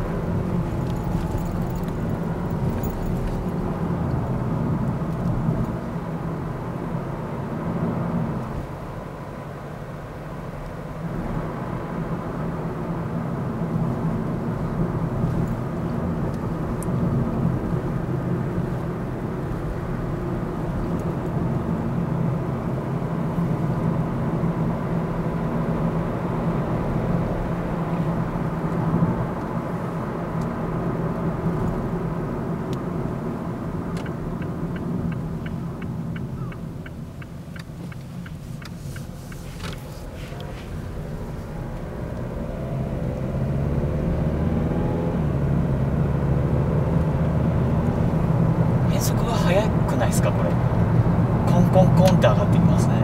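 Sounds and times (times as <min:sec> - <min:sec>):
car engine drone: 0:00.0 - 0:53.0
road noise: 0:00.0 - 0:53.0
light ticking: 0:34.0 - 0:39.8.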